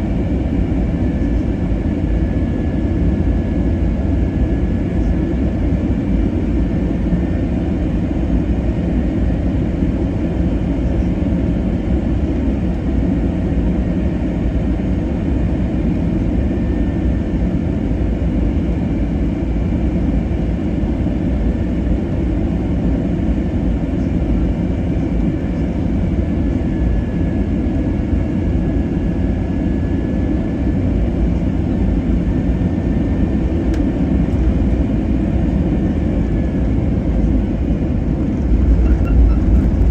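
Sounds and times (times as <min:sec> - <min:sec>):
aircraft cabin engine rumble: 0:00.0 - 0:39.9
faint steady whine: 0:35.5 - 0:39.9.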